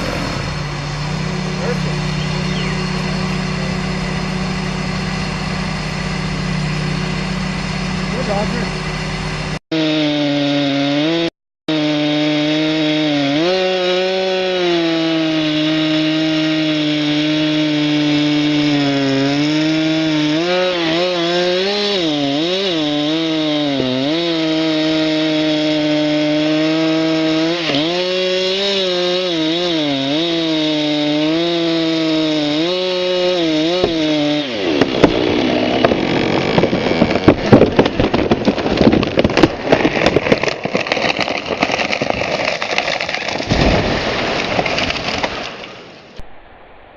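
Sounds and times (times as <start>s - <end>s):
chainsaw cutting wood: 0.0s - 46.2s
loud crackling with sharp snaps: 35.8s - 46.5s.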